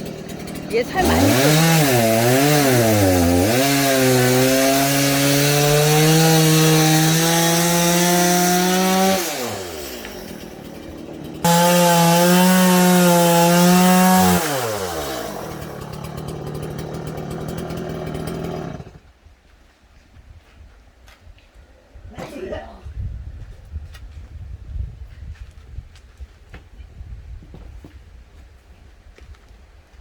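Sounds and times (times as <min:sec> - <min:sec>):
chainsaw cutting wood: 0:00.0 - 0:19.0.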